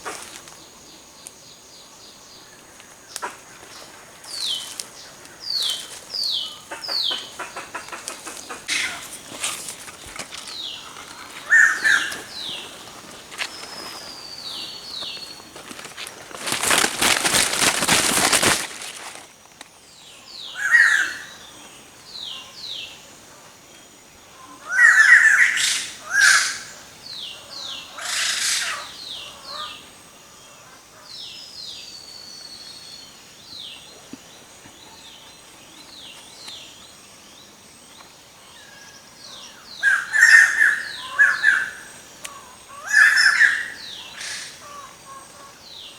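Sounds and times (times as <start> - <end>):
birds chirping: 0.0 - 19.0, 24.2 - 45.9
harsh bird calls: 3.1 - 18.6, 24.6 - 29.9, 38.6 - 45.9
rustling: 7.9 - 19.7.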